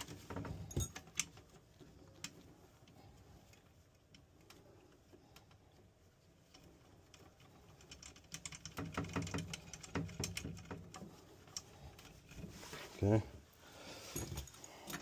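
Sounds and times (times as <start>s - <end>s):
metal fittings clicking and rattling: 0.0s - 12.8s.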